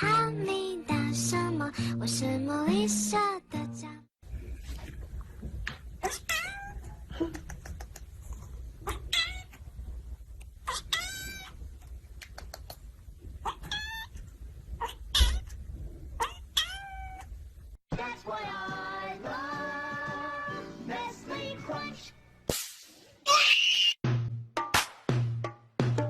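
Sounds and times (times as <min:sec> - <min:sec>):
music: 0:00.0 - 0:04.1, 0:17.9 - 0:22.3, 0:24.0 - 0:26.0
cat meowing: 0:06.0 - 0:07.0, 0:08.8 - 0:09.5, 0:10.6 - 0:11.6, 0:13.4 - 0:14.2, 0:14.8 - 0:15.6, 0:16.2 - 0:17.3.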